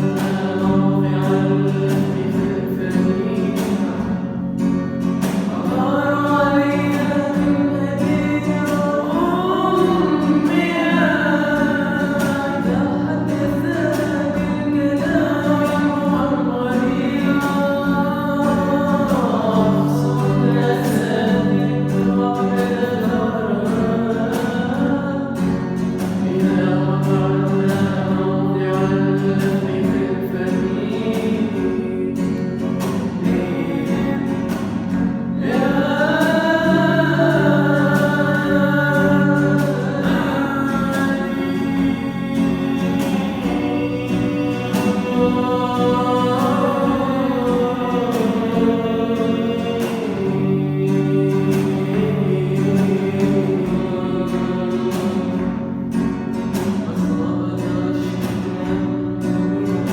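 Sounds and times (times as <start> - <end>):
person singing: 0.0 - 4.1, 5.2 - 34.8, 35.4 - 55.4.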